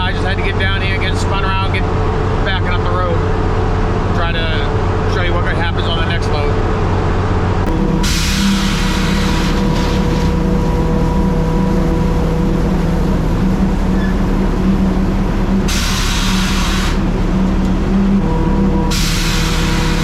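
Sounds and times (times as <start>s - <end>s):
diesel truck engine under load: 0.0s - 20.0s
loud hiss: 7.7s - 10.4s, 15.7s - 17.1s, 18.9s - 20.0s.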